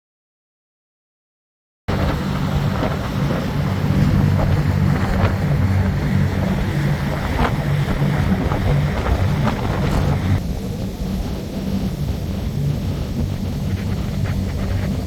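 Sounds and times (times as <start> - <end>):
water rushing past: 1.9 - 10.6
boat engine droning: 1.9 - 15.0
wind buffeting microphone: 1.9 - 15.0.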